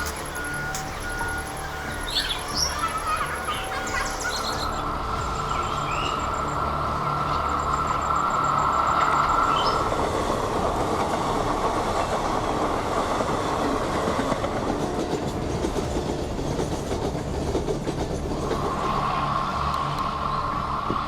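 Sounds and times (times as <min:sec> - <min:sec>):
high steady tone: 0:00.0 - 0:10.7
train rumbling on rails: 0:00.0 - 0:21.0.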